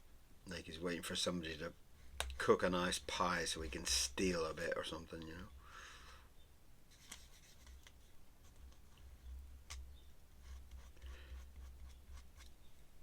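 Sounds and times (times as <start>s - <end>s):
pen scratching on paper: 10.4s - 12.5s.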